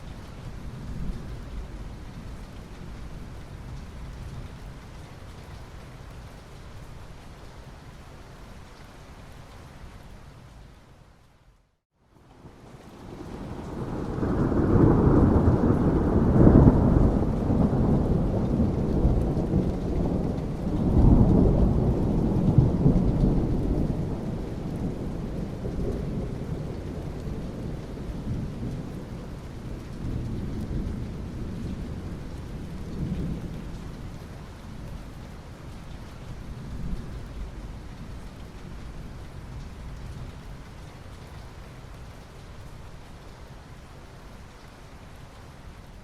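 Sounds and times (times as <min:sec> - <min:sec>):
steady rain: 0:00.0 - 0:46.0
thunder rumbling: 0:13.0 - 0:34.1.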